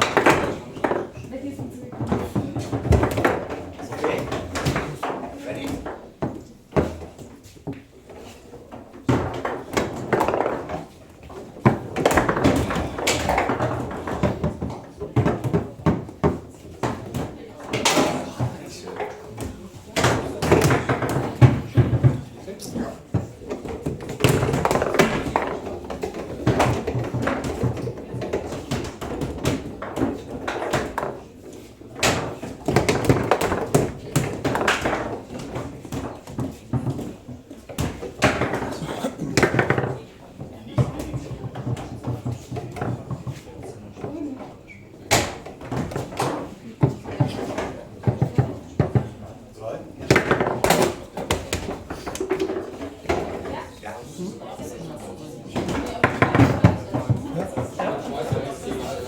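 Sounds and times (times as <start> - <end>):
foosball ball knocks: 0.0 - 1.2, 8.9 - 22.3, 23.0 - 43.5, 50.0 - 53.6, 55.6 - 58.8
foosball rods clacking: 0.0 - 53.7, 55.6 - 59.0.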